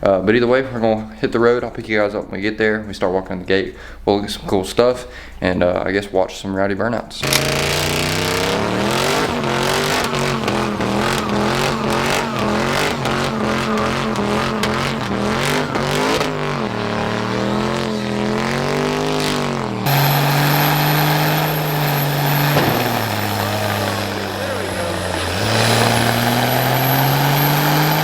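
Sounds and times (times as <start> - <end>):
diesel truck engine revving: 7.2 - 28.0.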